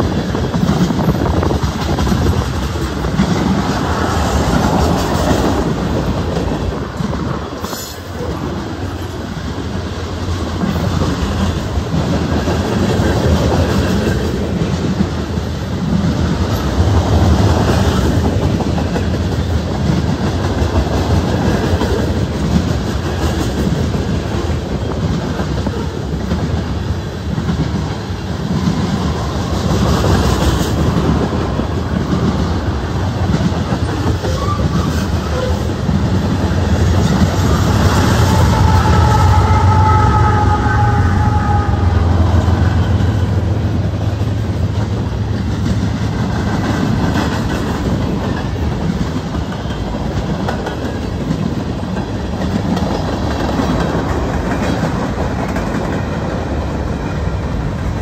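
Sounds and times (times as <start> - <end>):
steel wheels on rails: 0.0 - 58.0.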